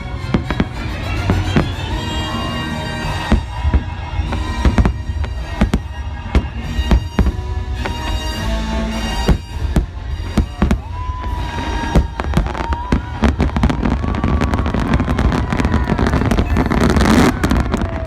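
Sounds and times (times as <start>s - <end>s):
fireworks bangs: 0.0s - 18.0s
fireworks crackling burst: 0.0s - 18.0s
fireworks show music: 0.0s - 18.0s.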